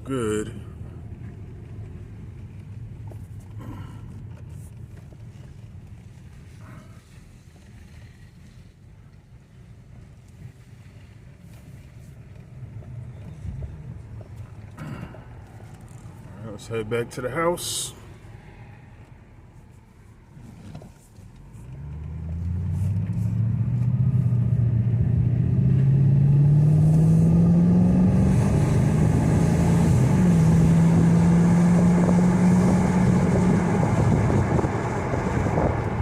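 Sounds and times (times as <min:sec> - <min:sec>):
car engine accelerating: 0:20.3 - 0:36.0
wind noise through windows: 0:29.1 - 0:36.0.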